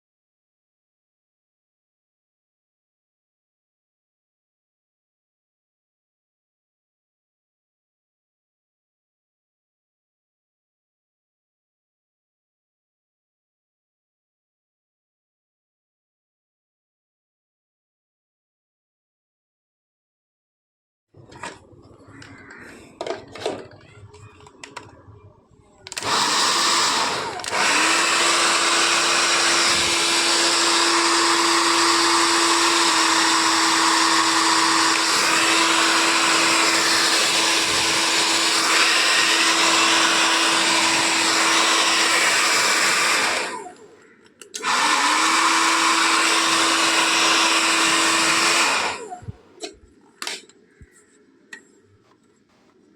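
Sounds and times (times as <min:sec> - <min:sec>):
hair dryer running: 0:25.9 - 0:43.9, 0:44.6 - 0:49.4
small clicks: 0:43.8 - 0:44.7.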